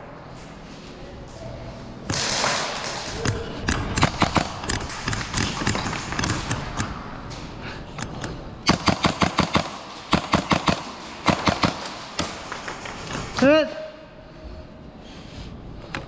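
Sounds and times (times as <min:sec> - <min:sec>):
airsoft guns full-auto bursts: 0:08.7 - 0:12.3.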